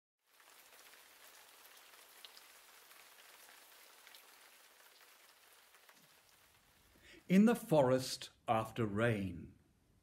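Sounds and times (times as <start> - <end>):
light rain patter: 0.2 - 7.4
louder raindrops: 0.2 - 7.4.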